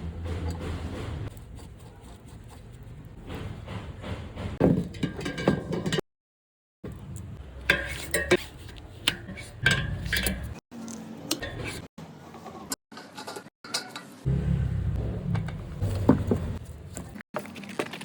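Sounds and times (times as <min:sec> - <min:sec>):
metal parts and tools clinking: 0:04.8 - 0:06.0, 0:06.9 - 0:11.9.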